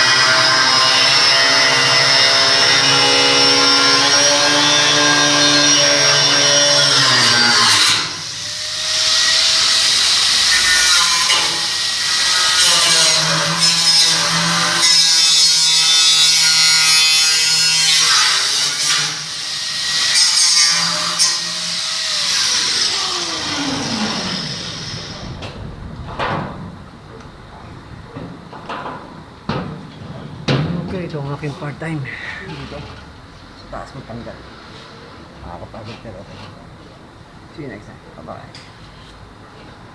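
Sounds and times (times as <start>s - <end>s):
angle grinder grinding steel: 0.0s - 25.7s.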